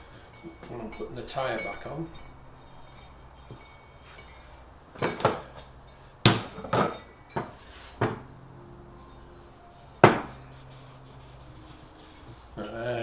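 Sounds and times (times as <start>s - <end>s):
tools knocking and clinking: 0.4s - 8.3s.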